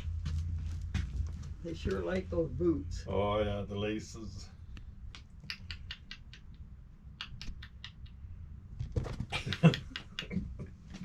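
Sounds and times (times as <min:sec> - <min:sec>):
kittens scratching and scuffling: 0:00.0 - 0:02.4, 0:08.7 - 0:09.4.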